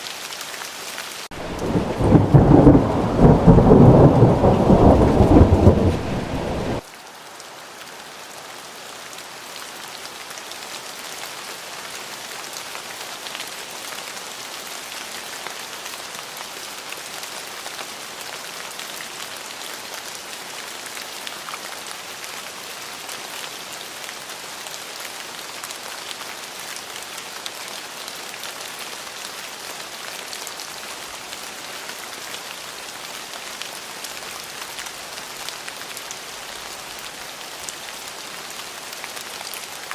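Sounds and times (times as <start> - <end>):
steady rain falling: 0.0 - 39.9
thunder rumble: 1.4 - 6.8.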